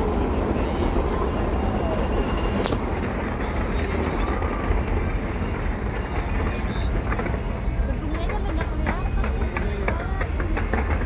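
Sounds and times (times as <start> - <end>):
firework whistle: 0.0 - 7.8
distant fireworks rumble: 0.0 - 11.0
faint crowd voices: 0.0 - 11.0.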